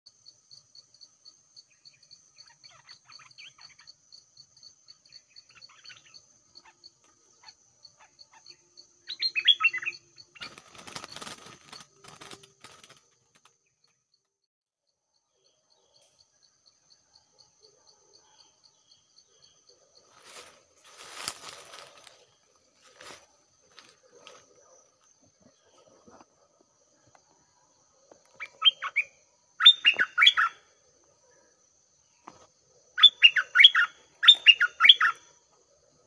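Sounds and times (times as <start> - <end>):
insect pulsed chirping: 0.1 - 36.0
bird calls: 1.7 - 4.0, 5.0 - 13.0, 17.6 - 35.7
rustling and flapping: 10.4 - 13.6.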